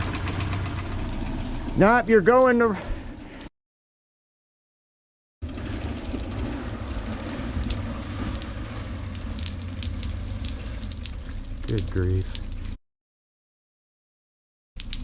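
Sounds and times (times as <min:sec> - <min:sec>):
heavy rain pouring: 0:05.4 - 0:12.8
low rumble: 0:05.4 - 0:12.8
sharp raindrop ticks: 0:05.4 - 0:12.8, 0:14.8 - 0:15.0.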